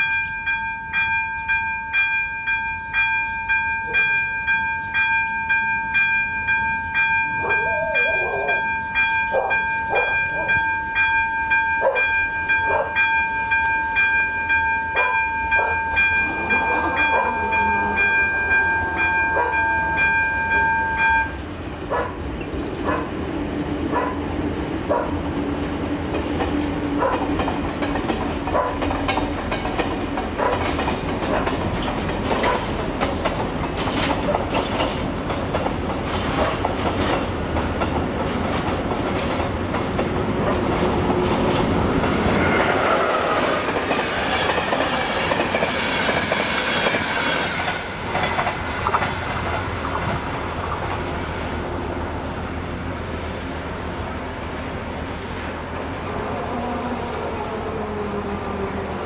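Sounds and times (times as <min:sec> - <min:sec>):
train wheels clattering: 0:21.3 - 0:53.3.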